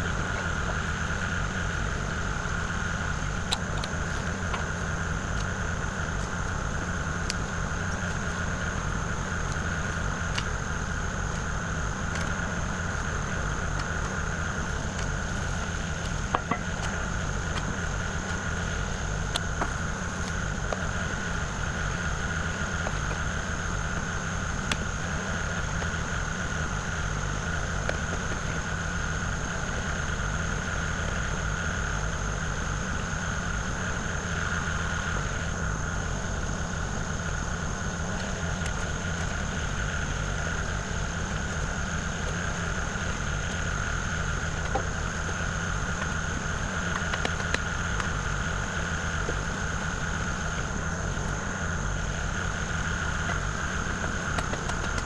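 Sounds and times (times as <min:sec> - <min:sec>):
excavator diesel engine running: 0:00.0 - 0:31.0
high whine: 0:00.0 - 0:55.0.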